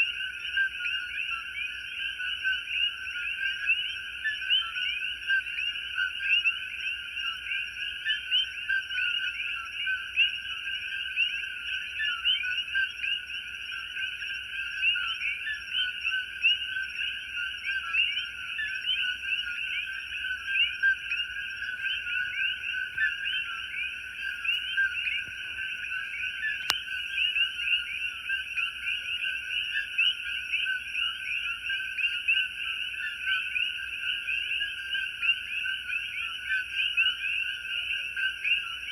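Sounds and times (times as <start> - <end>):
chorus of frogs calling: 0.0 - 38.9.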